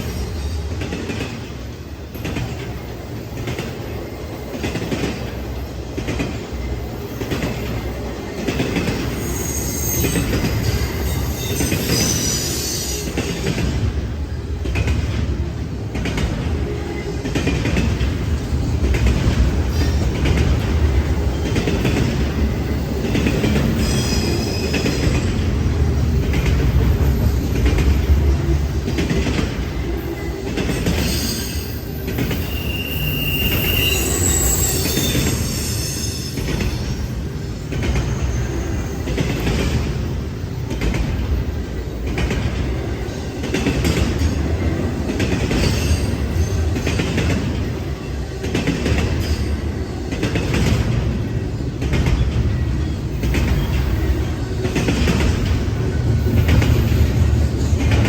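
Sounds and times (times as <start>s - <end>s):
train wheels rumbling on rail: 0.0s - 58.0s
high-pitched wheel squeals: 9.1s - 13.2s, 31.0s - 37.0s.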